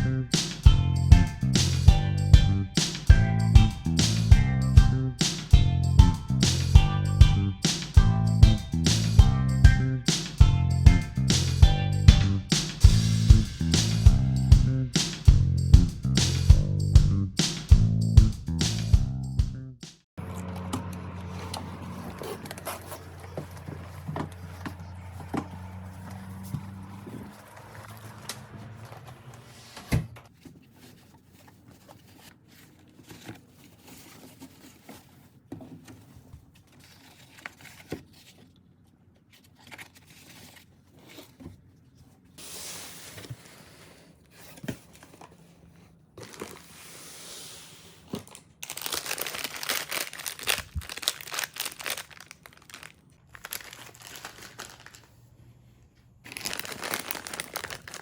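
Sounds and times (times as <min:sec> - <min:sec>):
crinkly packaging rustling: 0:21.2 - 0:29.5, 0:30.3 - 0:42.4, 0:43.0 - 0:46.8, 0:48.1 - 0:58.0.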